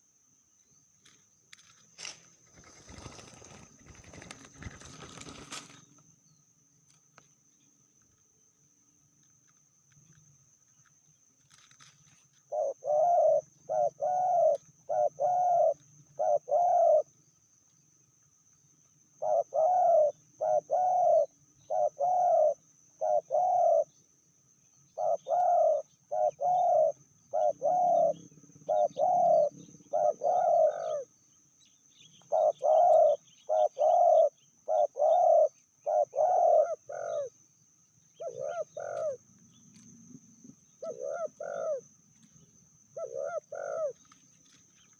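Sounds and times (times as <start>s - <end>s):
dove cooing: 12.4s - 17.1s, 19.2s - 24.0s, 24.9s - 31.1s, 32.1s - 37.3s, 38.2s - 39.8s, 40.4s - 41.9s, 42.9s - 44.2s.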